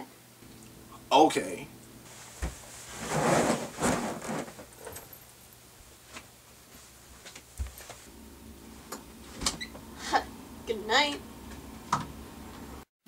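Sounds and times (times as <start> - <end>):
rustling: 2.1 - 5.2.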